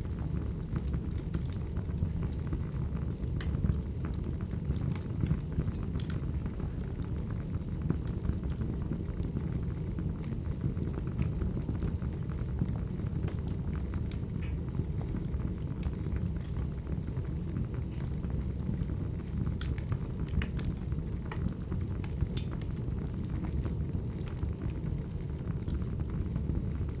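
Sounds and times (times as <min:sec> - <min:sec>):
firewood crackling and popping: 0:00.0 - 0:27.0
flames rumbling: 0:00.0 - 0:27.0.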